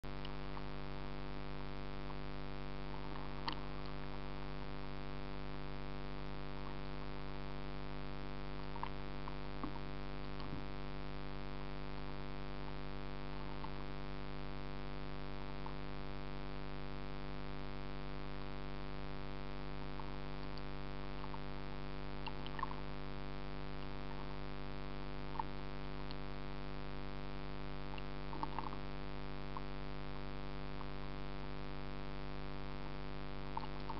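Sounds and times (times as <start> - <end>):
electrical hum: 0.0 - 33.9
faint clicks and chirps: 3.0 - 4.3, 22.1 - 22.8, 25.2 - 26.3, 27.9 - 28.9, 33.4 - 33.9.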